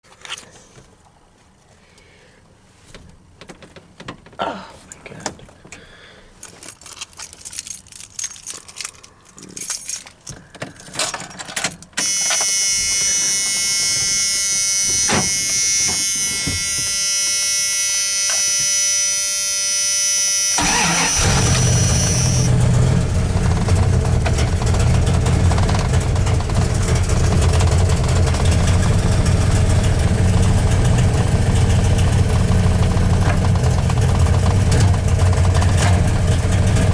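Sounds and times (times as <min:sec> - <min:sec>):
clicks and rustling: 0:06.4 - 0:13.6
steady high tone: 0:12.0 - 0:22.5
truck engine cranking: 0:12.0 - 0:36.9
engine rough idle: 0:20.5 - 0:36.9.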